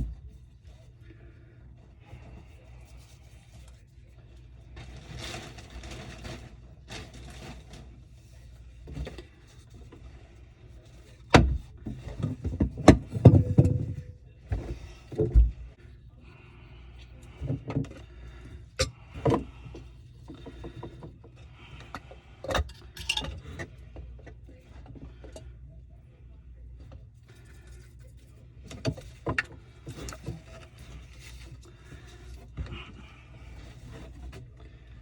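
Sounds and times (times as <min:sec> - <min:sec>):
tools and drain parts clattering: 0:12.2 - 0:14.2, 0:22.5 - 0:23.7.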